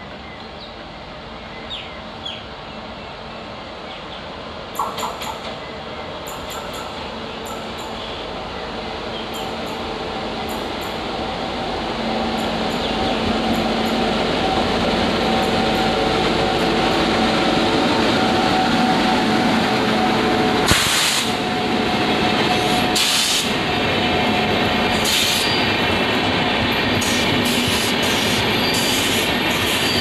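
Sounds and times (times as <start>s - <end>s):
train wheels rumbling on rail: 0.0s - 30.0s
high hiss rushes: 20.5s - 26.2s, 26.8s - 29.9s.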